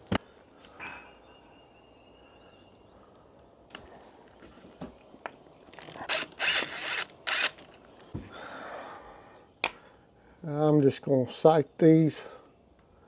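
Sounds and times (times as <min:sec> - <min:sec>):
cordless drill driving screws: 0:05.8 - 0:07.8.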